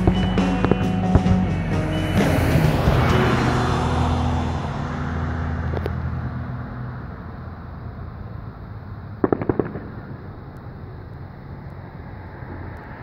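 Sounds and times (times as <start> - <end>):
distant fireworks rumble: 0.0 - 12.8
fireworks bangs: 9.2 - 10.4.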